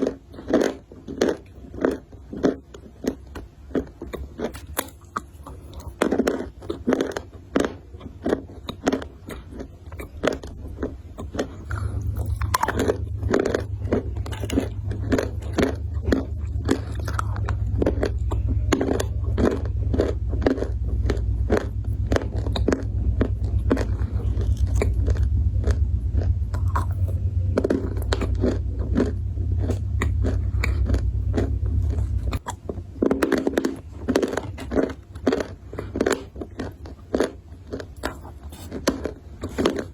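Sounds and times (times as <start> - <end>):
chewing crunchy food: 0.0 - 39.9
steady low hum: 0.0 - 39.9.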